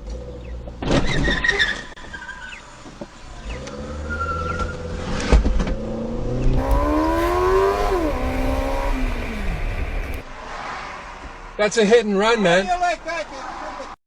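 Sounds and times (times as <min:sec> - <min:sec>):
car engine accelerating: 0:02.8 - 0:11.8.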